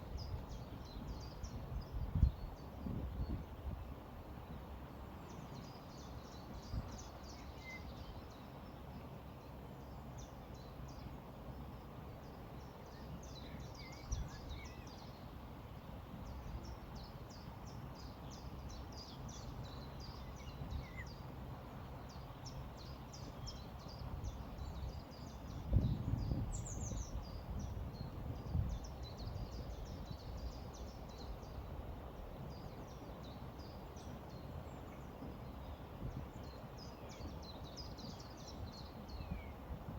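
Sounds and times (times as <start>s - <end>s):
small birds chirping: 16.2s - 39.9s.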